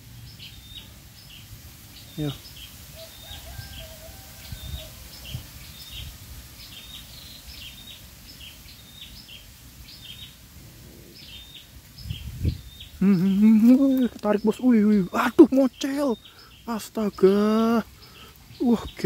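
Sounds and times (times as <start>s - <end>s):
small bird chirping: 0.0s - 19.0s
low wind rumble on microphone: 3.2s - 7.0s, 10.0s - 13.1s.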